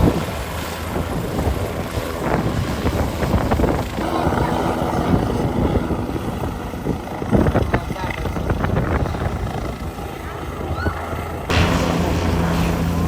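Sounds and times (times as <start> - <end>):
rough racing engines: 4.0 - 10.6, 11.4 - 13.0.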